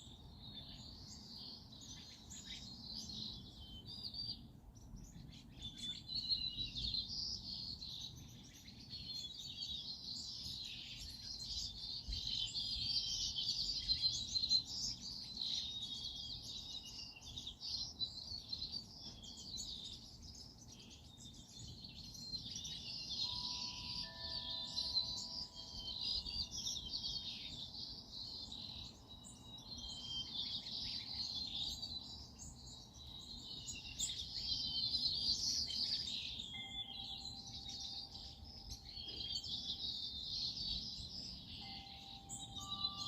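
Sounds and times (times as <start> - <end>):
many small birds chirping: 0.0 - 43.0.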